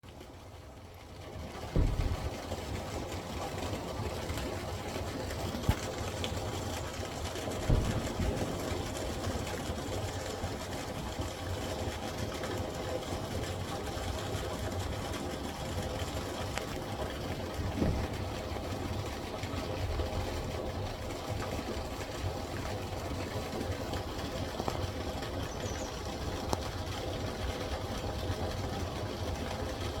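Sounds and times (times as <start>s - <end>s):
brief knocks: 1.7s - 2.3s.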